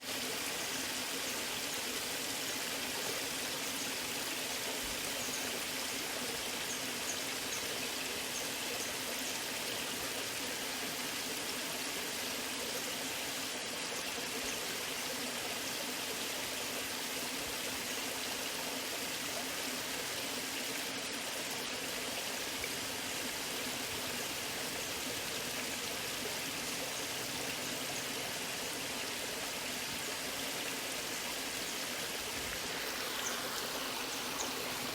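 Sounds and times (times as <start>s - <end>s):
waterfall rushing and splashing: 15.9s - 34.9s.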